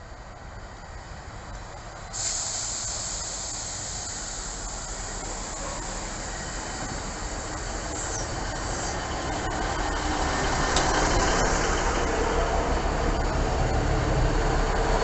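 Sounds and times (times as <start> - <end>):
diesel train low rumble: 0.0 - 15.0
steady high hiss: 2.0 - 9.3.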